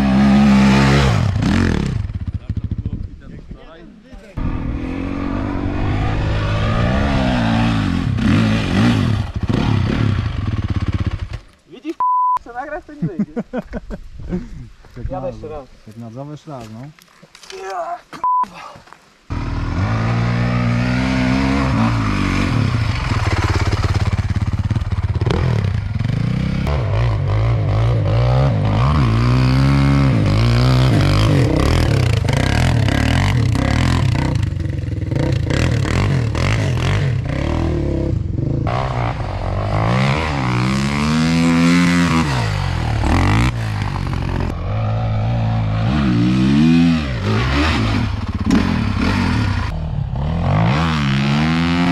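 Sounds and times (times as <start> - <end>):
off-road vehicle engine revving: 4.4 - 11.4, 19.3 - 24.2, 25.2 - 51.9.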